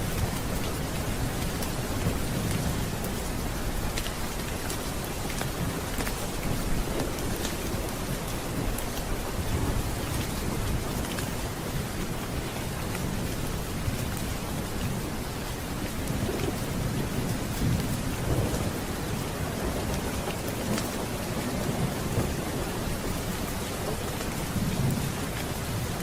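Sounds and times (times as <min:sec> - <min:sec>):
steady rain: 0:00.0 - 0:26.0
thunder rumbling: 0:15.8 - 0:26.0.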